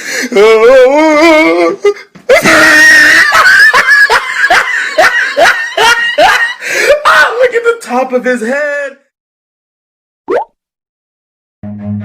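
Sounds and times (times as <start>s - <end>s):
loud scream: 2.3s - 3.8s.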